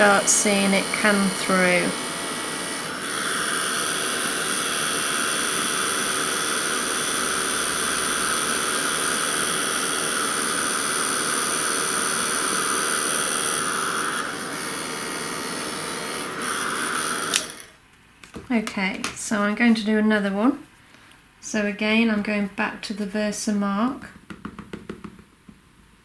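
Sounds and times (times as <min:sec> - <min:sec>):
heat gun blowing: 0:00.0 - 0:17.8.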